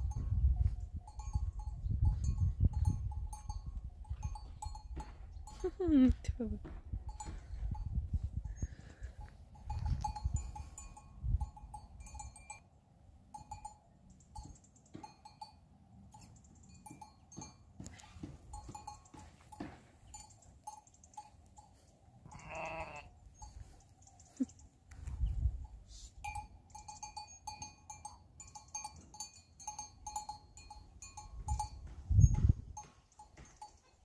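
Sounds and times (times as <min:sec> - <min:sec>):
bells on grazing flock clinking: 0:00.0 - 0:34.0
sheep bleat: 0:22.2 - 0:23.2.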